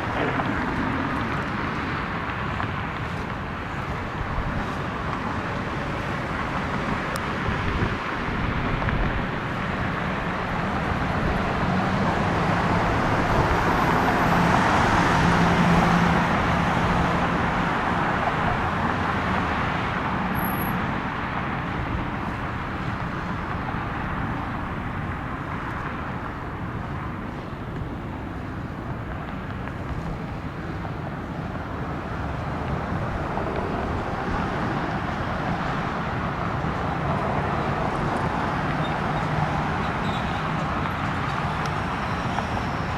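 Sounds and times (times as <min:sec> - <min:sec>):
jet airliner passing: 0:00.0 - 0:02.8.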